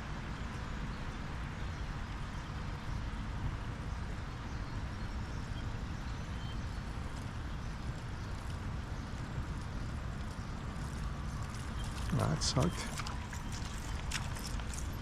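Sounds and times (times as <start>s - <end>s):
fast-flowing creek rushing: 12.1s - 15.0s.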